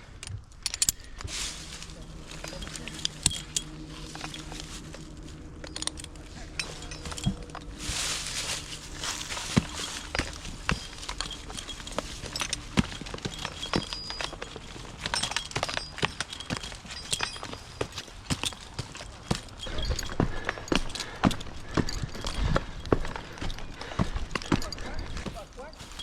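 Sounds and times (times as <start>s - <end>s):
scratchy rustle: 1.3s - 15.1s.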